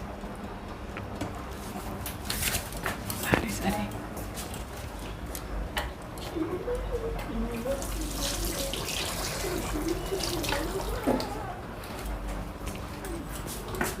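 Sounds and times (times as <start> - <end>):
faint voice: 6.3 - 11.8
tap water running: 7.6 - 11.4.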